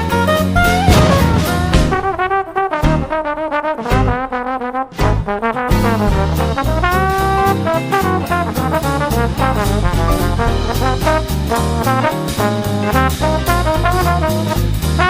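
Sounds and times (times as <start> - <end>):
upbeat brass music: 5.3 - 12.9.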